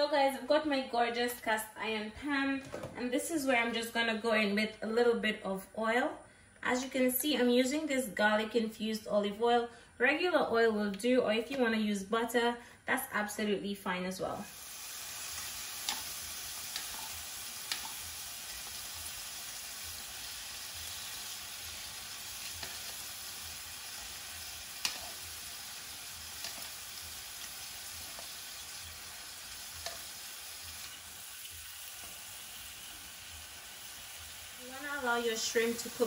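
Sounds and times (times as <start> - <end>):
shrimp sizzling in a pan: 14.4 - 36.0
metal tongs clicking on pan: 15.8 - 16.1, 16.7 - 18.6, 22.4 - 23.0, 24.8 - 25.2, 26.3 - 26.8, 28.0 - 28.4, 29.8 - 30.1.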